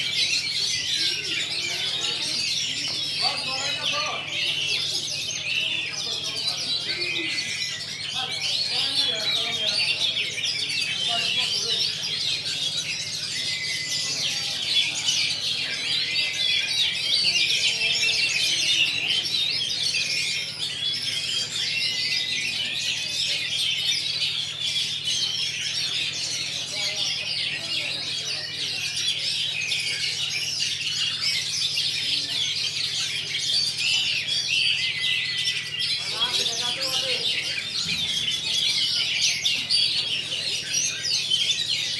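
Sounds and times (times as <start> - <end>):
birds singing chirps and whistles: 0.0 - 41.9.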